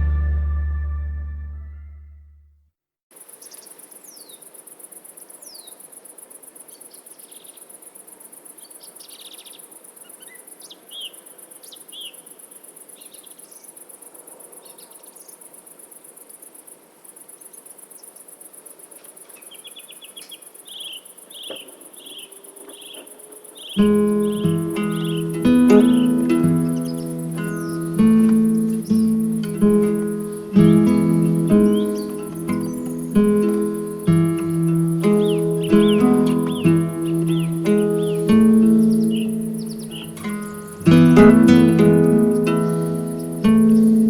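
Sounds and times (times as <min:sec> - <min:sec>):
crickets chirring: 0:03.1 - 0:44.0
birds calling: 0:19.4 - 0:44.0.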